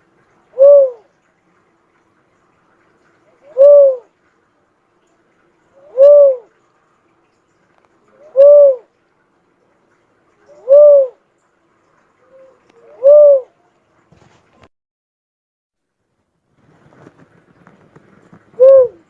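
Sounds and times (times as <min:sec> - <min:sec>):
dove cooing: 0:00.5 - 0:01.1, 0:03.3 - 0:04.1, 0:05.8 - 0:06.6, 0:08.1 - 0:08.9, 0:10.4 - 0:11.2, 0:12.2 - 0:13.6, 0:18.5 - 0:19.0.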